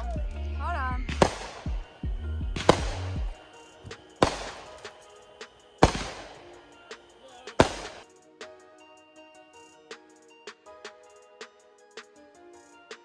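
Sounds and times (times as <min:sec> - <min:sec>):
music with drum beat: 0:00.0 - 0:05.1, 0:05.8 - 0:08.2
fireworks bangs: 0:01.1 - 0:08.0.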